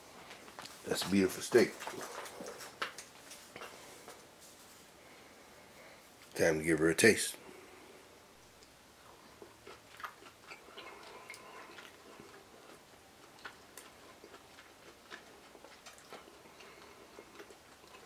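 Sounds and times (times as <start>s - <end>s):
man chewing with mouth clicks: 1.8s - 3.8s, 8.5s - 18.0s.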